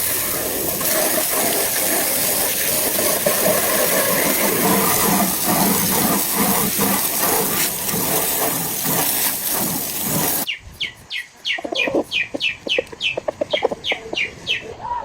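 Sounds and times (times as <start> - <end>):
loud steady hiss: 0.0 - 15.0
chicks peeping: 10.8 - 14.6
chickens clucking: 11.1 - 14.6.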